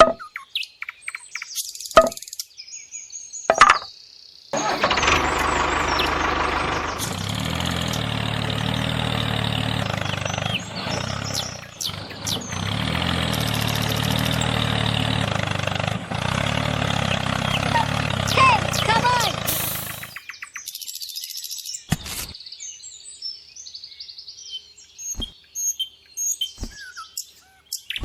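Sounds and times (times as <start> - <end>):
engine idling: 4.6 - 20.2.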